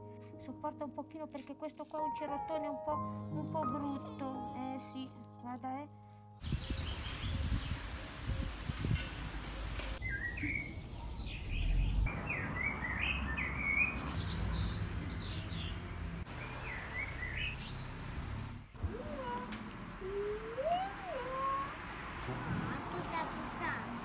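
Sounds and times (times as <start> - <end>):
birds chirping: 6.4 - 21.8.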